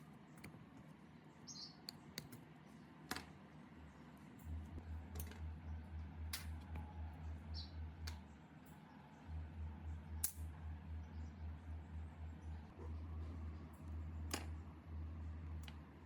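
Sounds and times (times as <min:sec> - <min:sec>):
faint low pulsing hum: 0:03.8 - 0:16.0
tools and metal parts clicking: 0:05.1 - 0:05.4.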